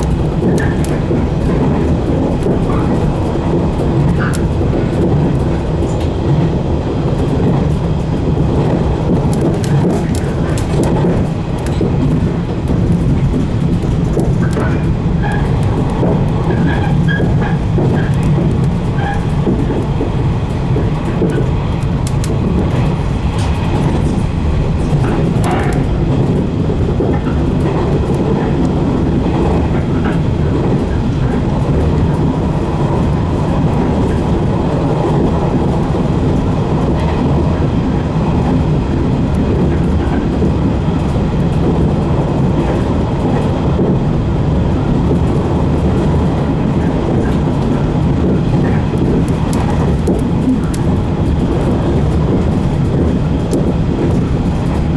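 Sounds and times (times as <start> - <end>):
rail-joint clicks: 0.0 - 5.1, 12.7 - 26.4
train wheels rumbling on rail: 0.0 - 54.9.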